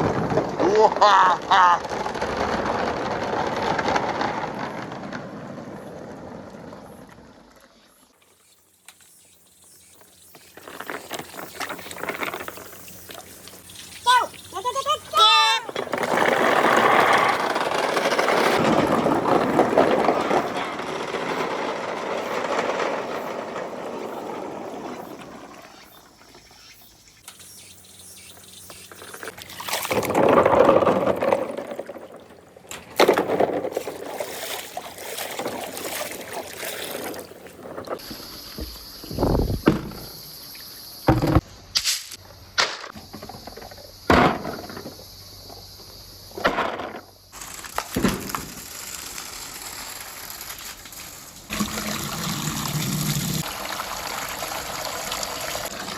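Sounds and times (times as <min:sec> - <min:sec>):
marbles rolling on a track: 0:00.0 - 0:06.9, 0:15.2 - 0:25.8, 0:29.9 - 0:32.2, 0:47.3 - 0:53.5.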